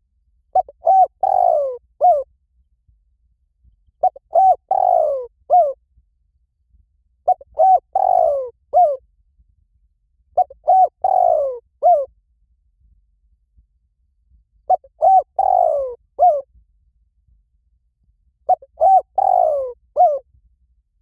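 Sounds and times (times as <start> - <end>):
dove cooing: 0.6 - 2.3, 4.0 - 5.8, 7.3 - 9.0, 10.4 - 12.1, 14.7 - 16.4, 18.5 - 20.2.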